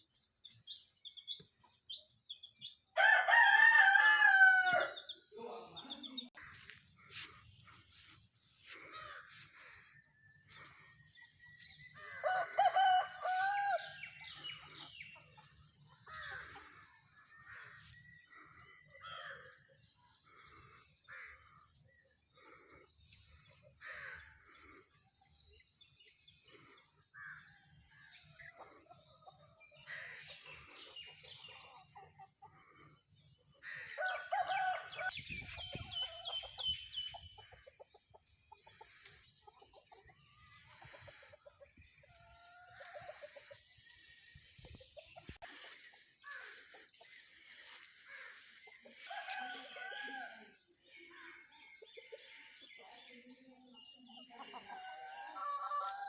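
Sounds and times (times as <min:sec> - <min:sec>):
rooster crowing: 0:03.0 - 0:05.0, 0:12.1 - 0:14.0.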